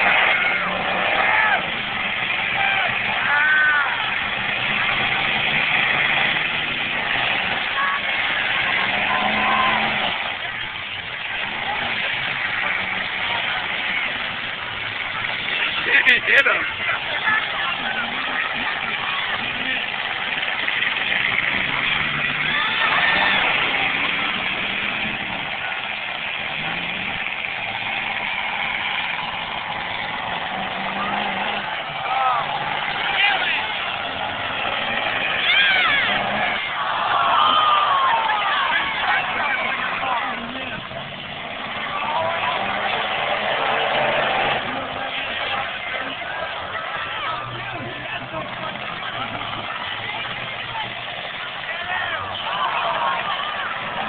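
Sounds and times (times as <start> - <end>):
car engines running: 0.0 - 54.0.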